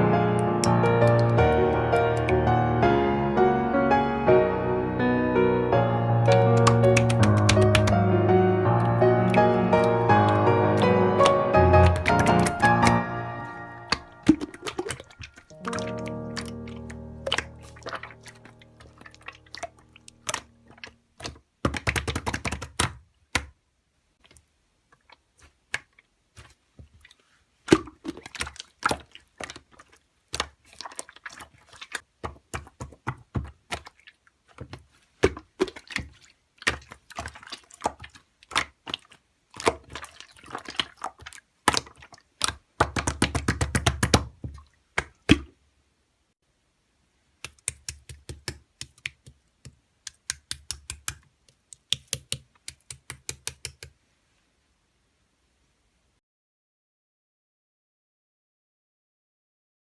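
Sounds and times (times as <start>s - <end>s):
slime squishing by hand: 0.3s - 2.5s, 6.2s - 8.1s, 8.7s - 23.6s, 24.2s - 45.6s, 47.4s - 54.0s
sticky clicks and crackling pops: 6.3s - 8.0s.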